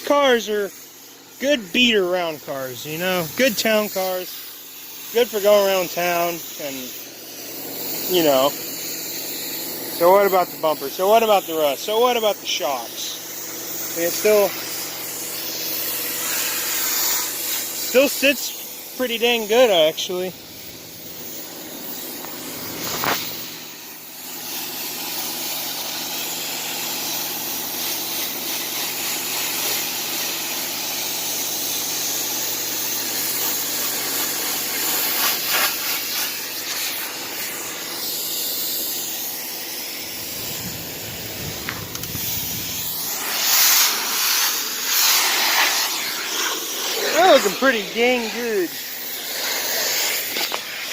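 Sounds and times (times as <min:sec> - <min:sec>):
pressure washer spray hissing: 0:00.0 - 0:50.9
steady low hum: 0:00.3 - 0:24.8, 0:36.6 - 0:50.4.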